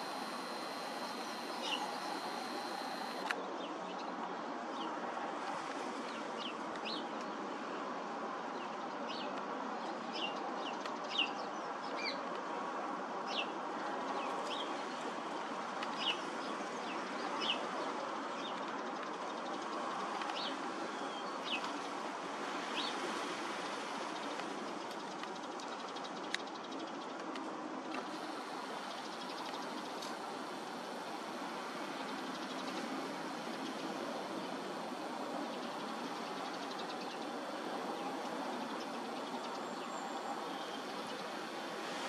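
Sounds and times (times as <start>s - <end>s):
birds chirping: 0.0s - 3.2s
faint high-pitched whine: 0.0s - 3.4s
outdoor background noise: 0.0s - 42.0s.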